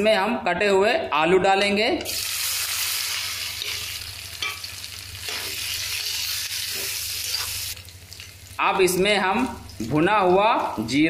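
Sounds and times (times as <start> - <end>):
potatoes sizzling in hot oil: 2.0 - 11.0
metal spoon scraping a pan: 3.6 - 7.6.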